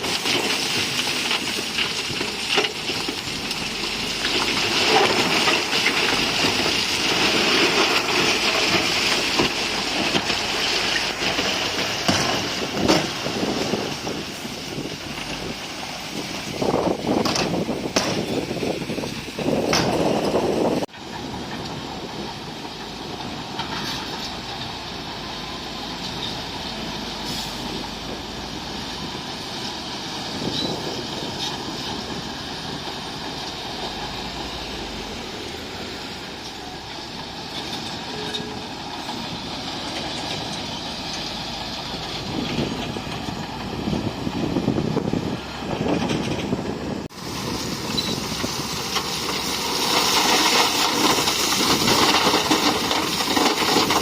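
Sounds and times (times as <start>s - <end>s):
diesel engine noise: 0.0s - 54.0s.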